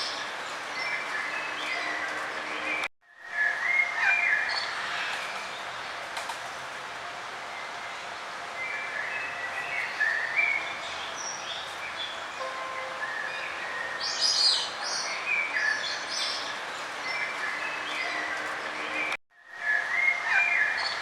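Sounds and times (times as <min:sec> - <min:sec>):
steady background hiss: 0:03.2 - 0:21.0
small birds chirping: 0:08.7 - 0:19.2.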